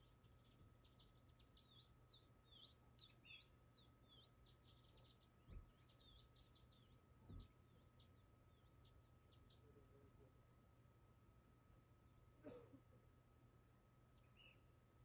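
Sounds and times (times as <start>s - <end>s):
small bird chirping: 0.0s - 10.3s, 13.6s - 14.7s
faint steady hum: 0.0s - 15.0s.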